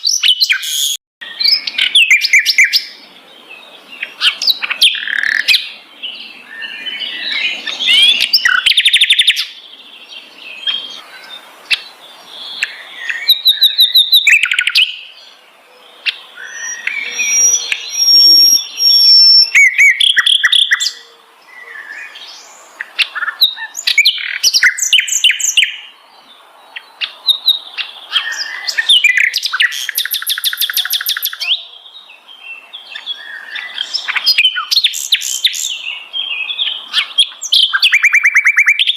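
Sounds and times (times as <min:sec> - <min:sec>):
flycatcher singing: 0:16.0 - 0:21.1, 0:26.7 - 0:38.9.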